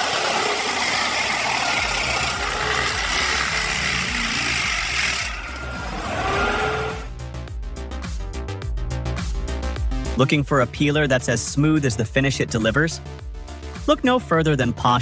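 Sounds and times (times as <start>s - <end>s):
heavy machine engine running: 0.0s - 7.2s
hissing grinding noise: 0.0s - 7.2s
background music: 1.7s - 15.0s.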